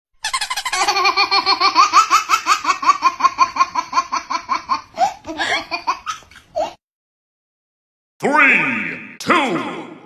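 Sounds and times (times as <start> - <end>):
baby laughing: 0.2 - 6.8.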